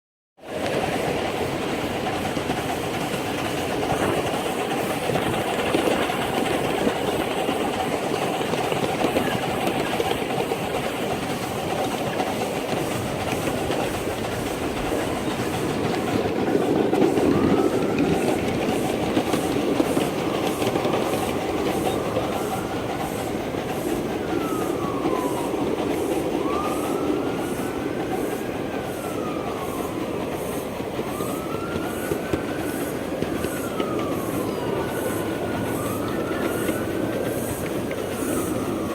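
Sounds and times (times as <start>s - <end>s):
train wheel squeal: 0.4s - 38.9s
wheels clicking over rail joints: 0.4s - 38.9s.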